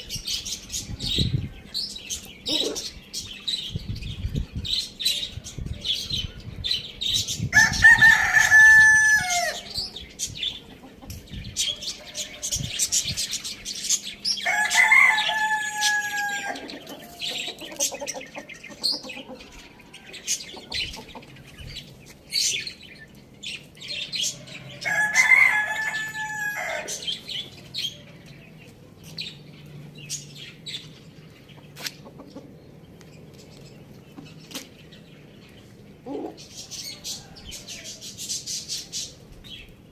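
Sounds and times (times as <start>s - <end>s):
rooster crowing: 7.5s - 9.7s, 14.4s - 17.2s, 24.3s - 27.1s.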